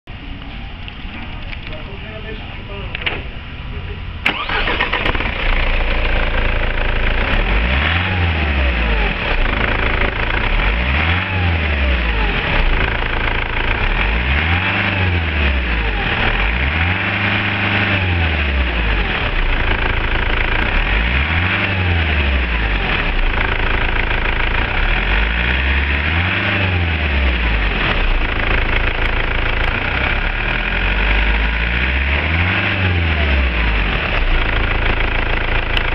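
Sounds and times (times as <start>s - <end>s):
diesel engine idling and revving: 0.1s - 35.9s.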